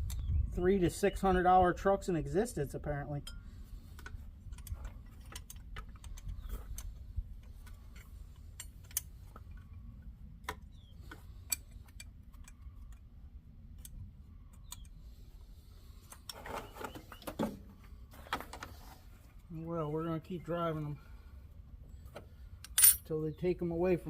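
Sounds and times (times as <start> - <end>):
low steady rumble: 0.0 - 16.4
hand tools clinking on metal: 22.7 - 23.1.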